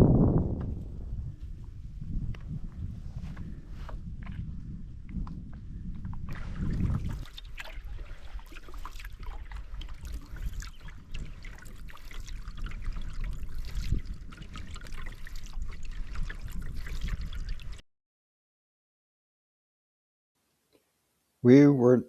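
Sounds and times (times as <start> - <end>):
water splashing against canoe: 6.1 - 17.8.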